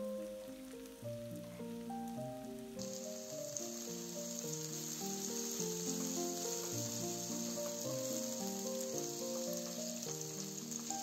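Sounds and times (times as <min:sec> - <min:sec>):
melodic background music: 0:00.0 - 0:11.0
vegetables sizzling in oil: 0:00.0 - 0:11.0
spatula stirring in pan: 0:03.0 - 0:11.0.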